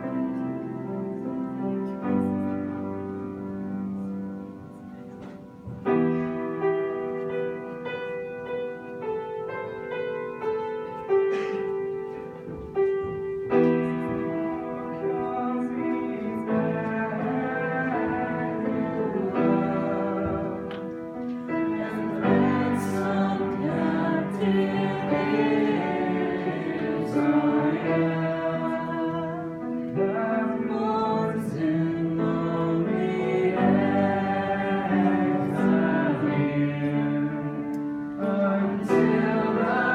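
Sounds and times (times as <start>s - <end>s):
voices singing: 13.8s - 39.9s.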